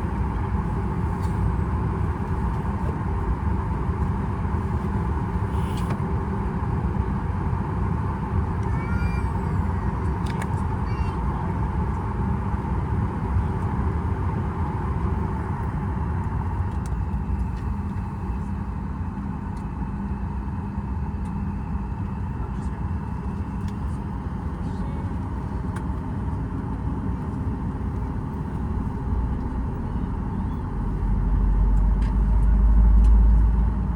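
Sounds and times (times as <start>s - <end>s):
aircraft cabin rumble: 0.0s - 33.9s
constant hum: 0.0s - 33.9s.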